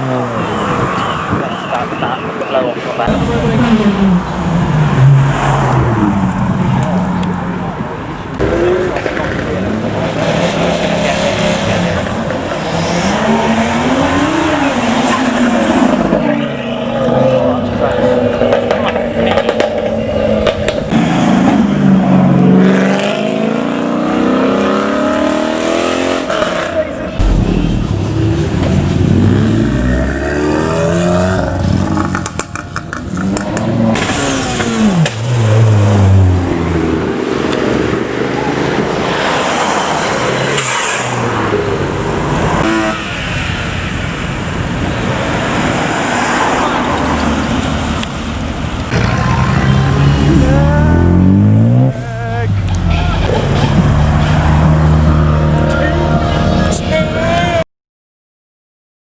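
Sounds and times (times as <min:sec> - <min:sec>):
car engines pulling away: 0:00.0 - 0:57.6
sharp exhaust cracks: 0:26.6 - 0:31.0.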